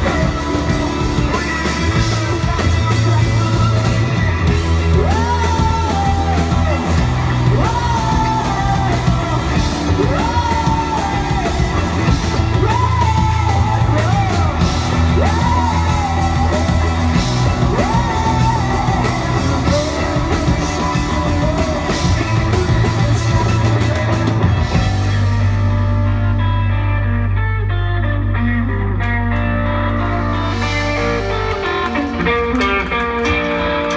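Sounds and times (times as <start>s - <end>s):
person singing in shouting style: 0.0s - 25.2s
rock band playing live: 0.0s - 33.9s.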